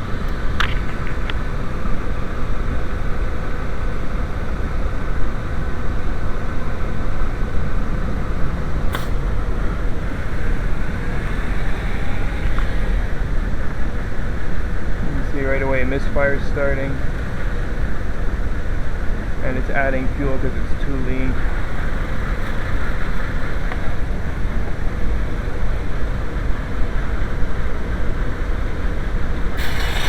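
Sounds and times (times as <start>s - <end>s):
car engine idling: 0.0s - 30.0s
engine misfires: 7.8s - 30.0s
sharp click: 8.9s - 9.4s.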